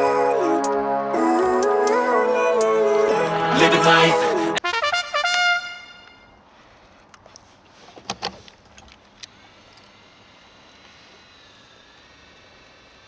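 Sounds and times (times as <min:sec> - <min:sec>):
music: 0:00.0 - 0:04.6.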